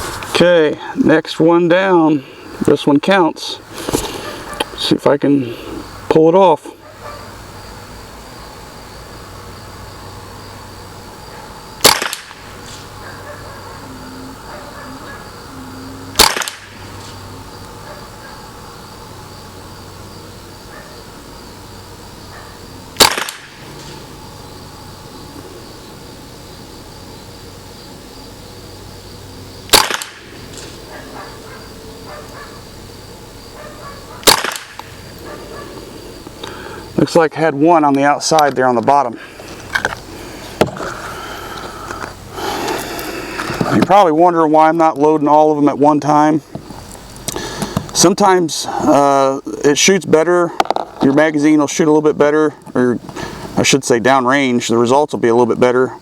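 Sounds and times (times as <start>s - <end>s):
rifle shot with echo: 11.8s - 12.5s, 16.2s - 16.8s, 23.0s - 23.6s, 29.7s - 30.3s, 34.2s - 34.9s.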